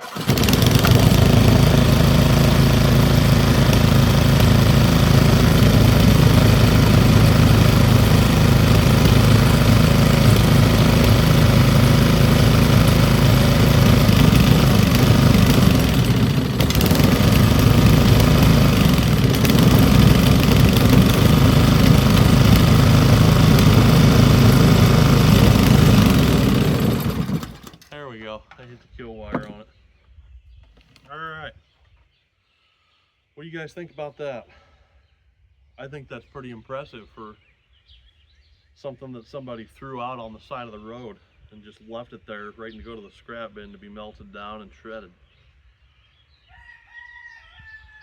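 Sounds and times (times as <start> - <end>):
small engine running: 0.0 - 27.9.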